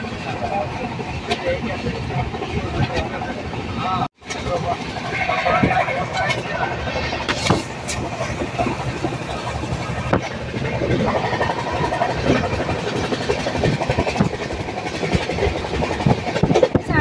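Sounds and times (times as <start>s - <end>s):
train carriage rumbling and rattling: 0.0s - 17.0s
train wheels knocking: 0.9s - 17.0s.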